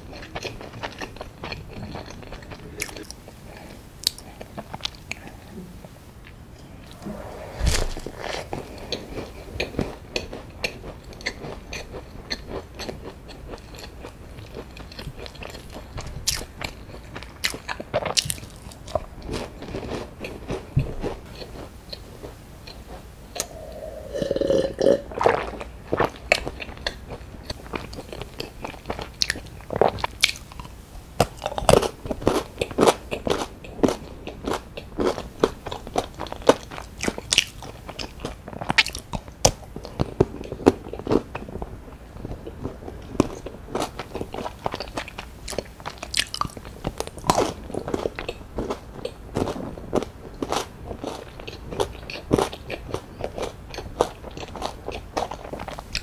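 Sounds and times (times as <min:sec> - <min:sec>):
crunchy pastry chewing: 0:00.0 - 0:05.3, 0:08.5 - 0:56.0
swallowing milk: 0:23.4 - 0:25.5.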